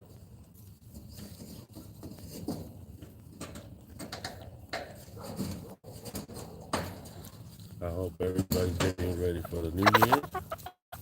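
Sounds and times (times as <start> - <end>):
chickens tapping and scratching: 0.1 - 11.0
soft chicken calls: 9.4 - 11.0.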